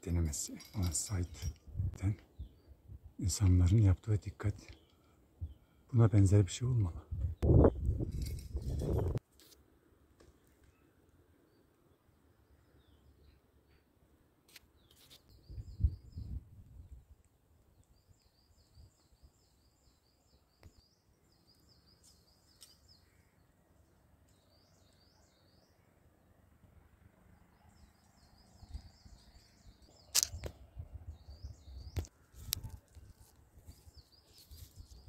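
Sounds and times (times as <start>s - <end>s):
small bird singing: 10.6s - 13.9s, 14.7s - 17.0s, 17.7s - 26.0s, 27.3s - 35.0s
sharp clicks: 30.1s - 30.6s.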